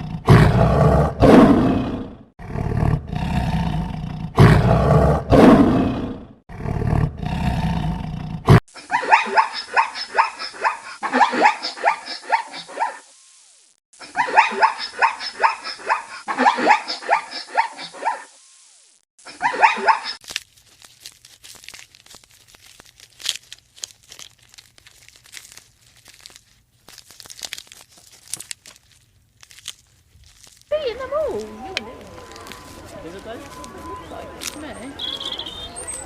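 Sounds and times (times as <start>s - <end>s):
animal barking calls: 8.9s - 13.0s, 14.0s - 18.3s, 19.4s - 20.2s.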